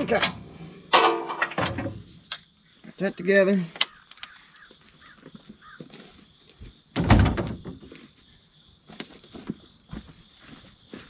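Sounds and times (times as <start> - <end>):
crickets trilling: 0.0 - 11.0
loud knock and rattle: 7.0 - 7.8.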